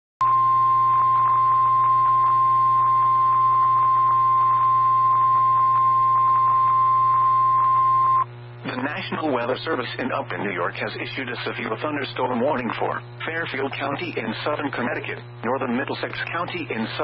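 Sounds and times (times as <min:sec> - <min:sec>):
steady alarm tone: 0:00.2 - 0:08.3
radio hum and crackle: 0:00.2 - 0:17.0.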